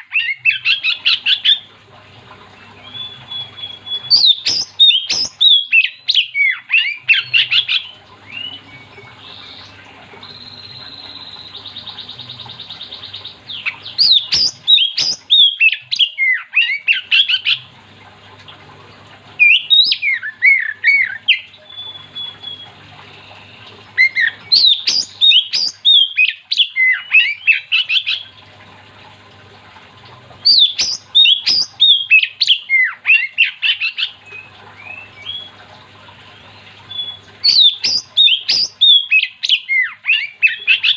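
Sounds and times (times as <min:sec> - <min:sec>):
faint steady buzz: 0:00.4 - 0:16.1, 0:16.7 - 0:32.5
bird singing whistled notes: 0:19.4 - 0:22.8, 0:23.4 - 0:27.6, 0:36.9 - 0:40.9.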